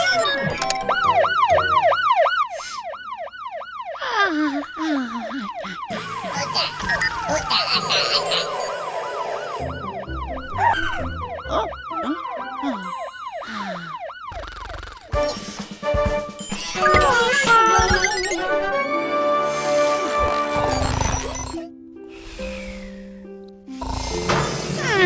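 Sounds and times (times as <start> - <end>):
cartoon siren wailing: 0.0 - 15.2, 16.6 - 19.0
cartoon falling glide: 4.0 - 15.1.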